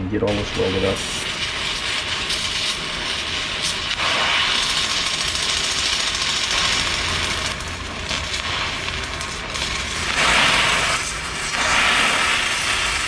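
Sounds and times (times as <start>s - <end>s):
arc welding: 0.1s - 13.0s.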